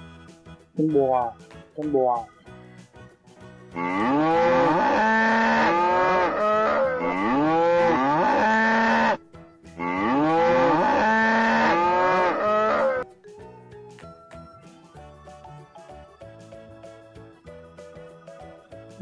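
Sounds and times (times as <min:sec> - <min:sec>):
cow mooing: 0:03.8 - 0:09.2, 0:09.8 - 0:13.0.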